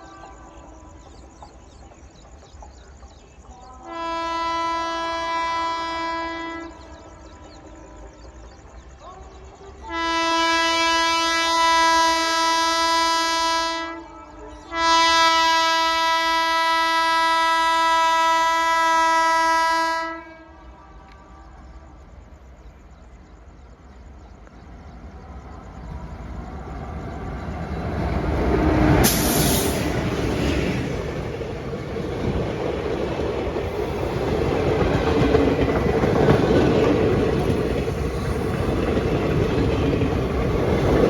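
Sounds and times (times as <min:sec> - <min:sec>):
train approaching: 0:00.0 - 0:41.0
locomotive horn blasts: 0:03.8 - 0:06.8, 0:09.9 - 0:14.1, 0:14.7 - 0:21.3.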